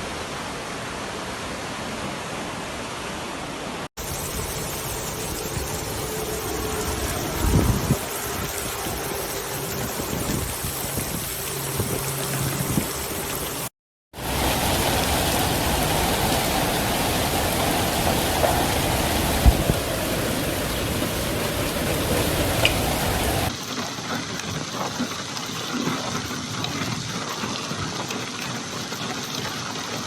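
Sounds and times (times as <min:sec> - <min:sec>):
heavy rain falling: 0:08.6 - 0:23.5.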